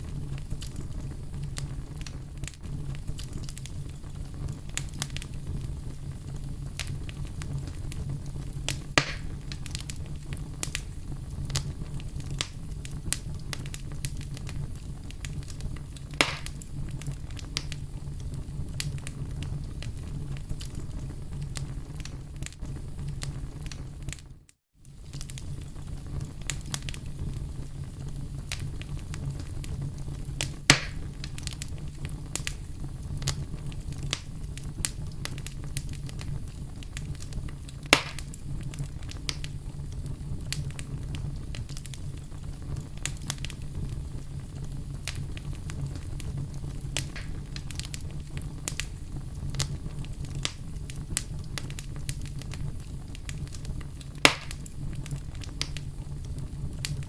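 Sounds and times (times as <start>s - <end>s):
campfire crackling and popping: 0.0s - 57.0s
low rumble of burning: 0.0s - 57.0s.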